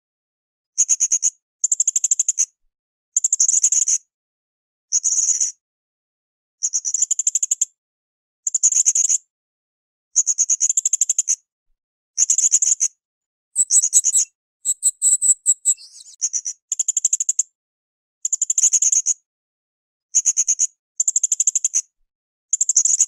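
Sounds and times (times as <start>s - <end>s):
parrot chattering: 13.6s - 16.2s
parrot high-pitched ticking calls: 13.6s - 16.2s.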